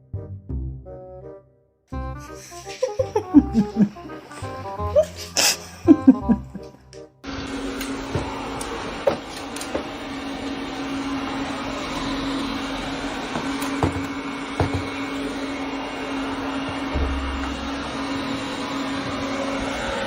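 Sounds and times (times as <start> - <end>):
mechanical hum: 7.3 - 20.0.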